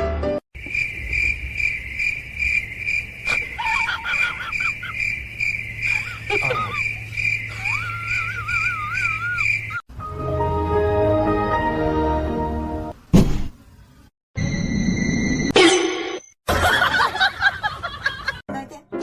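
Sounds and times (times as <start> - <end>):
cricket chirping: 0.6 - 9.8
wavering animal cries: 3.2 - 9.8.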